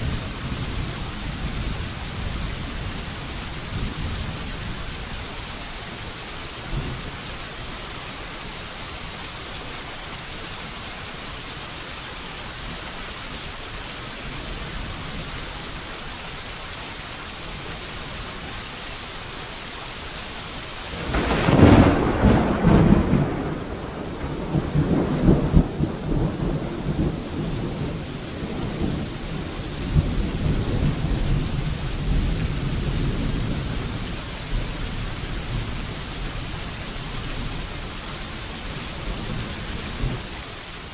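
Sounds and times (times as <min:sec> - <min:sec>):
steady rain falling: 0:00.0 - 0:40.9
thunderclap and rumbling thunder: 0:20.9 - 0:35.9.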